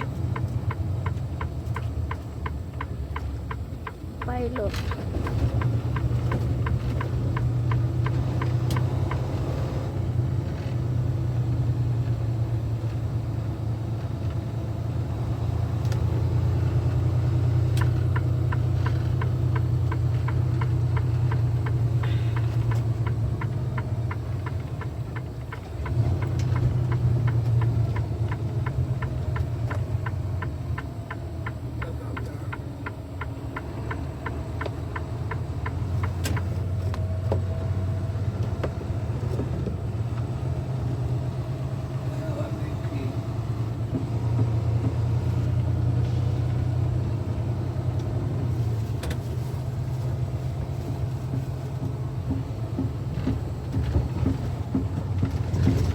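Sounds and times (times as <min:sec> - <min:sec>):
light regular ticking: 0:00.0 - 0:09.3, 0:17.6 - 0:36.6
diesel engine rumble: 0:00.0 - 0:55.9.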